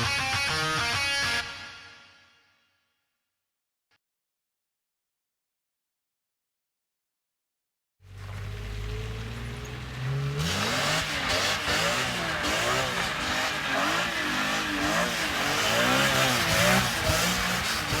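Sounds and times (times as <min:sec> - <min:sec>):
car engine idling and revving: 0:08.0 - 0:18.0.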